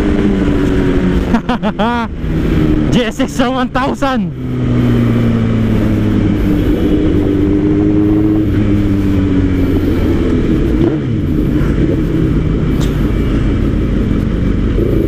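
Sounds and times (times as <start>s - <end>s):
motorcycle engine running: 0.0s - 15.0s
riding noise rushing: 0.0s - 15.0s.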